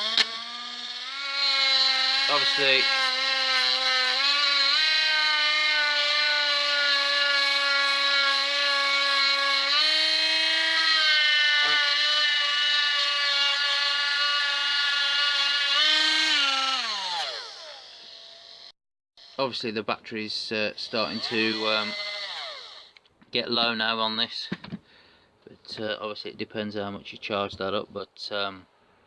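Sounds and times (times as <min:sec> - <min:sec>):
rotary tool whining: 0:00.0 - 0:19.6, 0:20.8 - 0:23.0.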